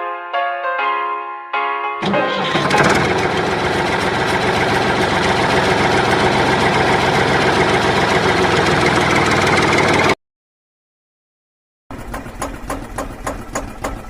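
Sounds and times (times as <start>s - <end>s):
small engine idling: 2.0s - 10.2s, 11.9s - 14.0s.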